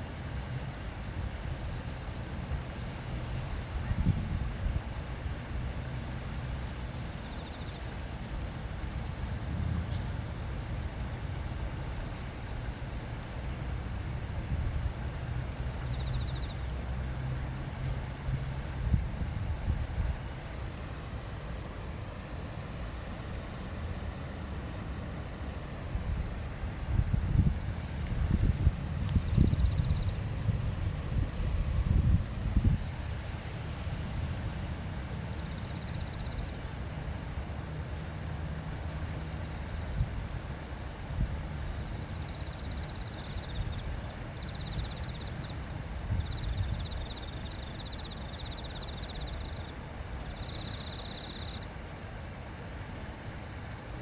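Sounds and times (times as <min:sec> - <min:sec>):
stream water rushing: 0:00.0 - 0:54.0
wind buffeting microphone: 0:03.4 - 0:05.7, 0:09.1 - 0:11.2, 0:17.8 - 0:22.2, 0:24.8 - 0:36.5, 0:41.1 - 0:49.6
river babbling over stones: 0:04.8 - 0:46.1.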